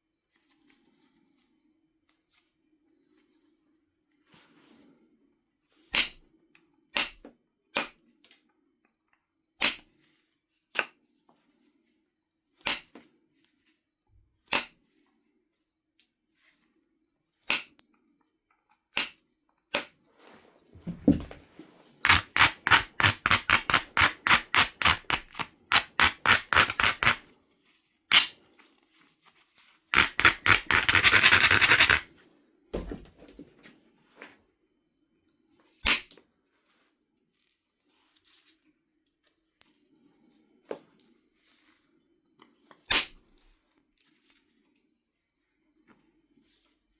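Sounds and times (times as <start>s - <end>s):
stone clicking on tool: 22.0s - 27.2s
edge rubbing on abrader: 30.0s - 32.1s.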